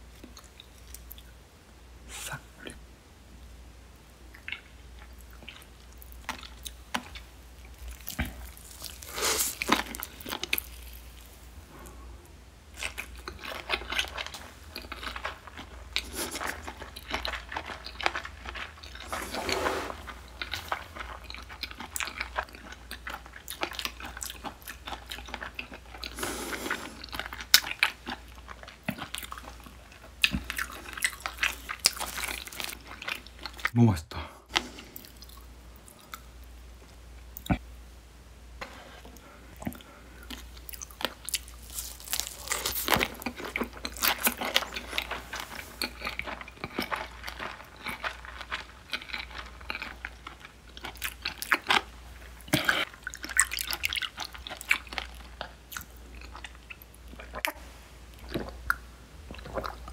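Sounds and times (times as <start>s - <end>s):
chewing and biting: 4.3s - 11.9s, 12.8s - 33.7s, 39.2s - 57.6s
mouth clicks and crunches: 39.6s - 57.6s.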